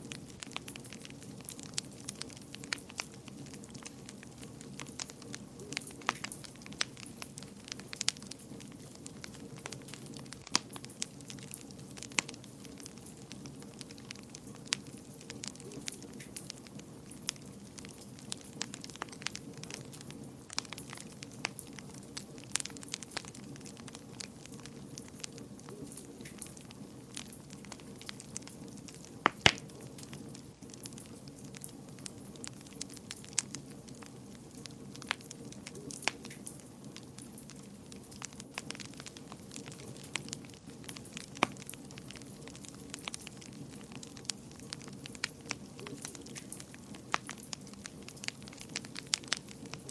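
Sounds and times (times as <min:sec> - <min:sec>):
low rumble of burning: 0:00.0 - 0:49.9
wood fire crackling: 0:00.0 - 0:49.9.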